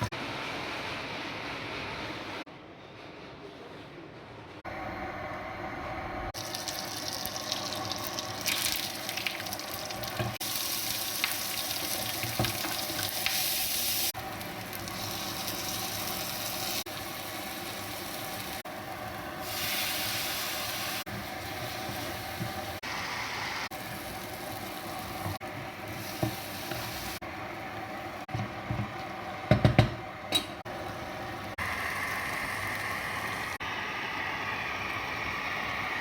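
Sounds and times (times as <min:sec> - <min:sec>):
chicken sizzling in a pan: 0:06.4 - 0:27.2.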